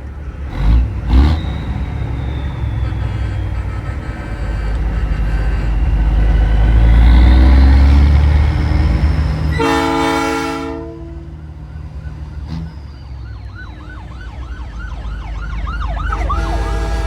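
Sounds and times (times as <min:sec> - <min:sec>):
truck diesel engine running: 0:00.0 - 0:17.0
train horn blast: 0:03.3 - 0:08.6, 0:09.4 - 0:11.6, 0:16.1 - 0:17.0.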